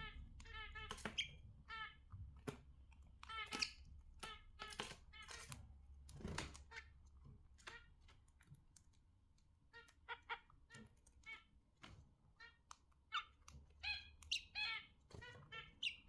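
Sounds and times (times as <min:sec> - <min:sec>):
budgerigars chirping: 0:00.0 - 0:02.0, 0:03.3 - 0:05.4, 0:13.1 - 0:16.0.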